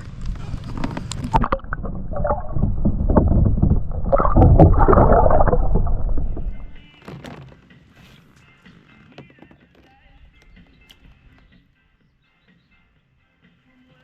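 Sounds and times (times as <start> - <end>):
water splashing and sloshing: 0.0 - 7.6
faint music: 5.2 - 14.0.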